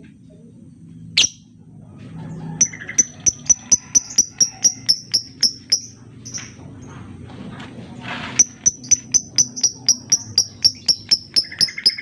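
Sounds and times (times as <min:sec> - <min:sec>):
lovebird shrill chirps: 0:01.2 - 0:01.5, 0:08.4 - 0:12.0.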